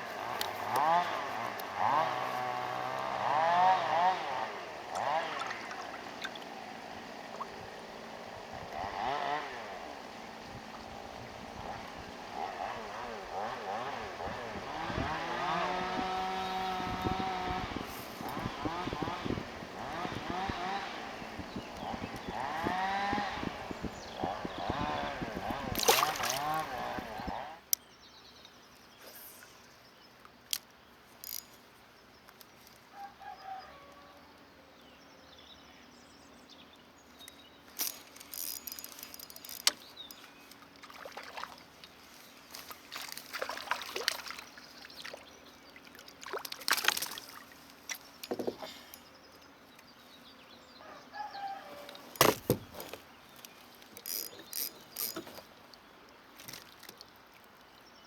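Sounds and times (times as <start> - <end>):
water swishes: 4.8 - 12.3, 22.6 - 27.3, 40.3 - 48.1
knocks and clicks of tackle: 24.6 - 27.4, 46.3 - 49.0, 51.9 - 55.8
faint bird call: 50.7 - 52.1.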